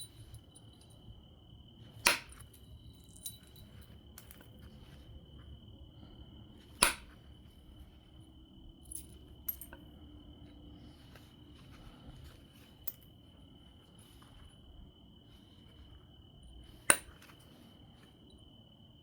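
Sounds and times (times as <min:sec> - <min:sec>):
stone knapping clicks: 0:02.0 - 0:02.5, 0:06.8 - 0:07.2.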